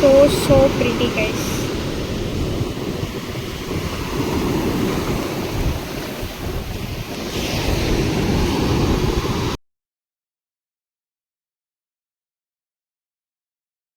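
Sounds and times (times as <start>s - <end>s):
sea waves breaking: 0.0s - 9.6s
wind buffeting microphone: 0.0s - 9.6s.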